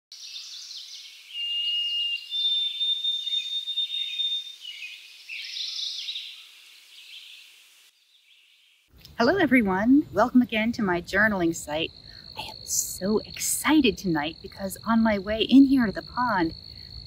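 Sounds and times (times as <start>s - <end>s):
birds chirping and trilling: 0.2s - 8.9s
bird whistling: 1.3s - 6.4s.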